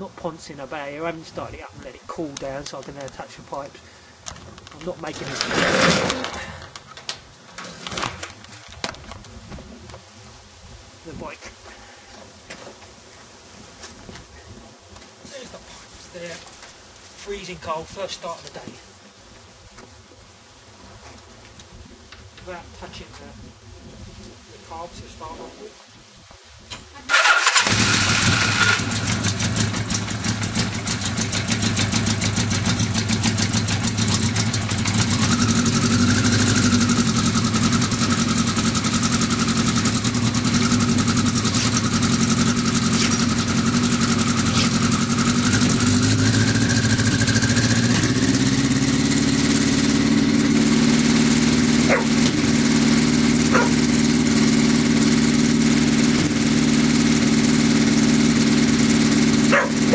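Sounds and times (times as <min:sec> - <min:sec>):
motorcycle engine idling: 0:27.2 - 0:59.9.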